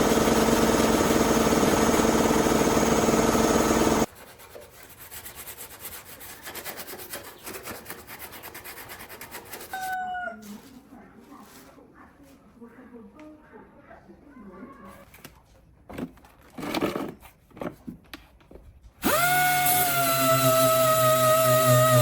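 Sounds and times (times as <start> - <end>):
abrasive power tool on metal: 0.0 - 4.1, 19.0 - 22.0.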